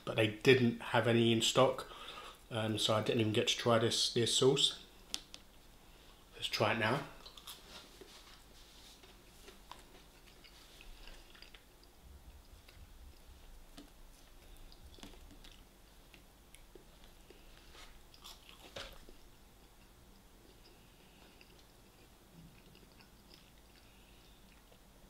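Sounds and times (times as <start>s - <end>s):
person chewing food: 7.2s - 25.0s.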